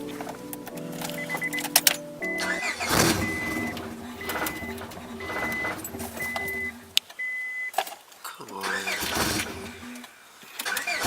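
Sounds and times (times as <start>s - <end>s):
car warning chime beeping: 1.0s - 7.8s.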